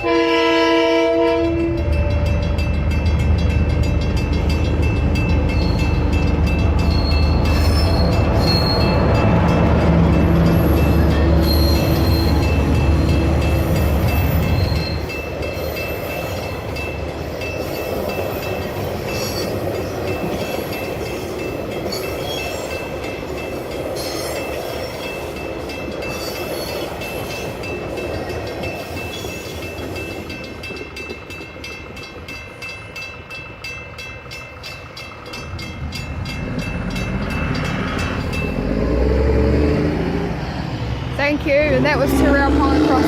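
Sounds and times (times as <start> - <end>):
train wheels clacking over rail joints: 1.2 - 40.1
level crossing bells ringing: 1.5 - 19.4, 24.5 - 39.2.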